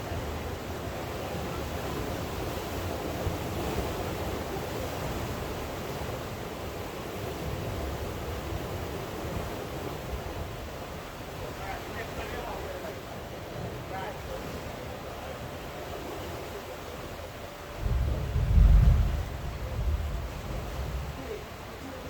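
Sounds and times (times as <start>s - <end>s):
sea waves washing: 0.0s - 22.0s
rain falling: 17.4s - 22.0s.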